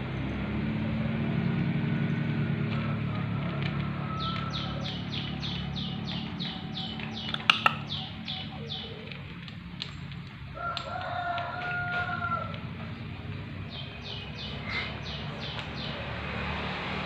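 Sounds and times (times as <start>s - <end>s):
sharp clicks: 3.5s - 12.7s
steady-pitched bird call: 4.0s - 9.4s, 13.7s - 16.0s
small bird chirping: 4.1s - 10.0s, 13.6s - 16.1s.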